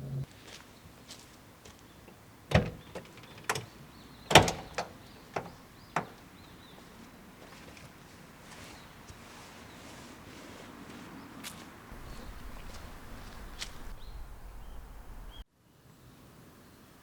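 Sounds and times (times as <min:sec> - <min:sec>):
sharp knocks and clunks: 0:02.1 - 0:06.3.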